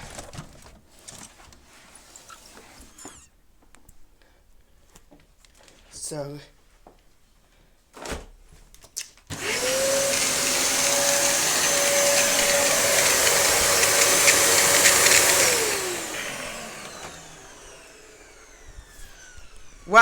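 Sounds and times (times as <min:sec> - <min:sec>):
vacuum cleaner motor whine: 0:02.8 - 0:03.3, 0:09.3 - 0:20.0
vacuum cleaner switch click: 0:09.4 - 0:19.3.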